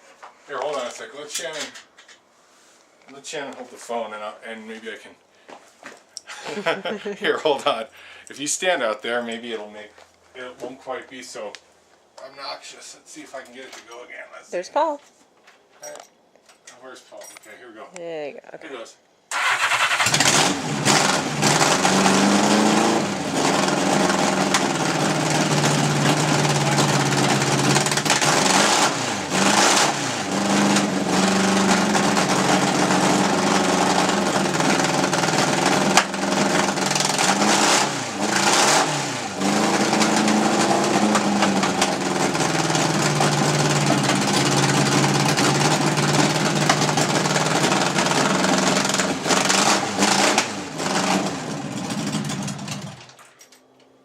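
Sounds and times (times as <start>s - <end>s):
motorcycle engine revving: 19.4s - 53.2s.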